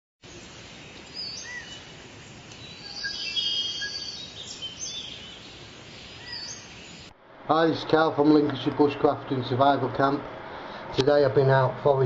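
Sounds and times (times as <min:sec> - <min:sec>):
background hiss: 0:00.2 - 0:12.0
bird trill: 0:00.3 - 0:02.0, 0:02.6 - 0:07.1
birds singing and calling: 0:00.3 - 0:07.1.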